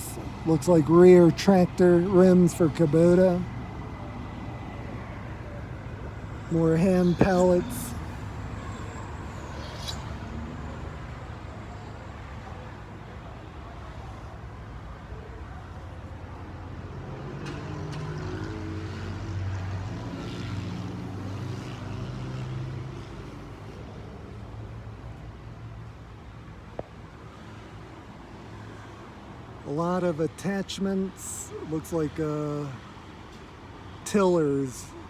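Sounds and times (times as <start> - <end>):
vehicle engine: 0.0 - 12.7
low rumble of motor vehicles: 0.0 - 35.0.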